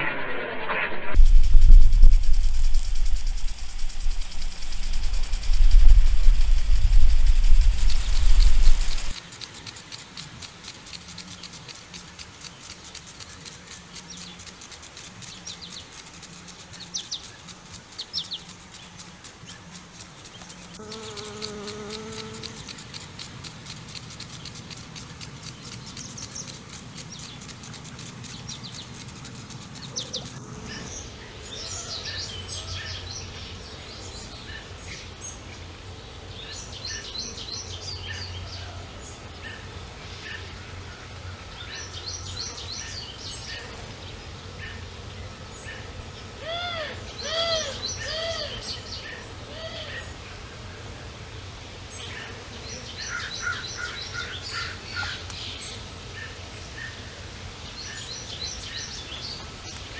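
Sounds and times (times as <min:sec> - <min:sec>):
low buzz: 0:00.0 - 0:09.2
fast even ticking: 0:01.2 - 0:30.5
songbirds chirping: 0:01.2 - 0:59.9.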